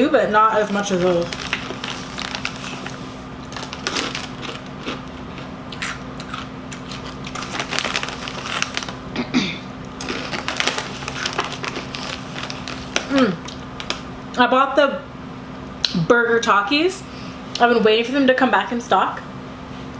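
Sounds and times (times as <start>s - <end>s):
crunching tortilla chips: 0.5s - 9.2s, 9.8s - 14.0s.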